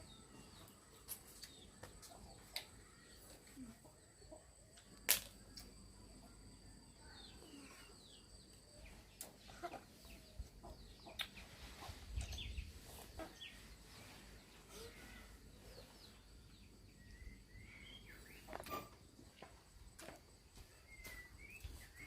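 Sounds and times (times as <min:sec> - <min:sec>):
chickens clucking: 0:09.2 - 0:15.1.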